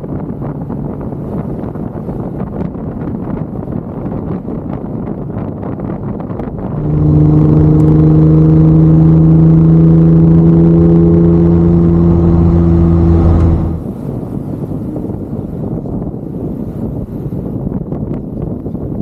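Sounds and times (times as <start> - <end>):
wind rushing over microphone: 0.0 - 19.0
car engine running: 6.6 - 14.1.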